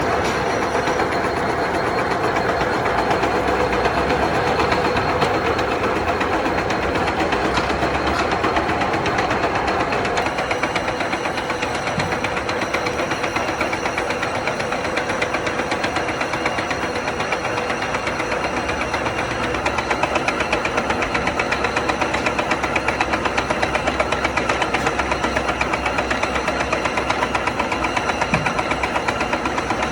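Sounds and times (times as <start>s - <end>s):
metal lathe running: 0.0s - 29.9s.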